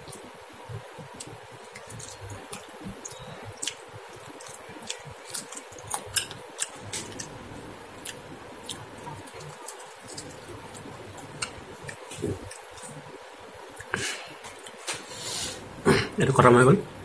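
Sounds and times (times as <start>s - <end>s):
man chewing wetly: 0.0s - 15.3s
mouth clicks and smacks: 1.1s - 7.4s, 8.0s - 14.8s.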